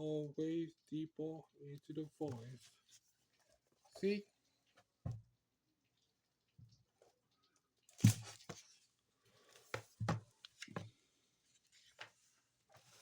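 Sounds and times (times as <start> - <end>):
book pages rustling: 8.0 - 13.0.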